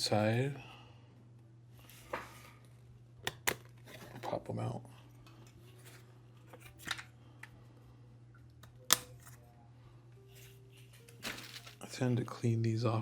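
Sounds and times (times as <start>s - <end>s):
steady low hum: 0.0s - 13.0s
plastic parts snapping out: 3.2s - 4.2s, 8.6s - 9.4s.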